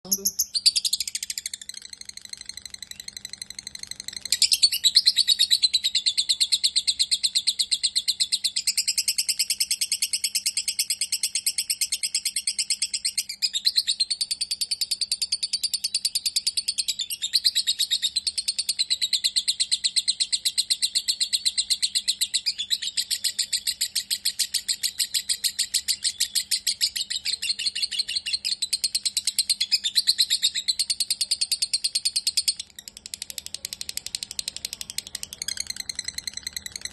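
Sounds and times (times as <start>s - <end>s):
lovebird chattering trill: 0.0s - 36.9s.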